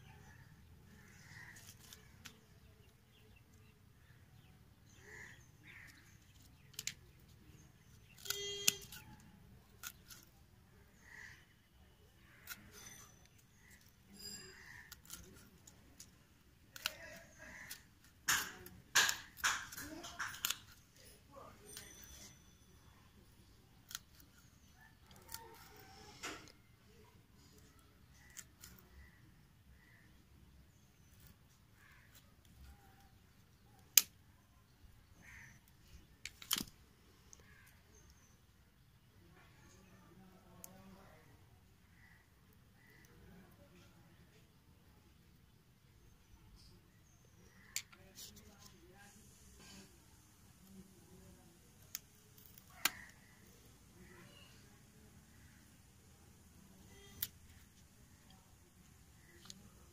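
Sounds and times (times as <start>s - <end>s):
pruning shears snipping stems: 7.8s - 10.3s, 16.7s - 22.3s, 36.2s - 36.8s, 51.8s - 53.3s.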